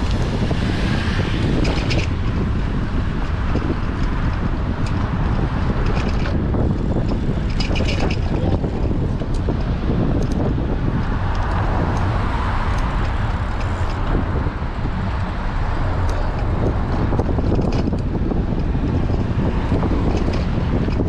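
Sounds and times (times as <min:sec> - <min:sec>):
wind buffeting microphone: 0:00.0 - 0:21.0
faint ticks and rattles: 0:01.4 - 0:14.1.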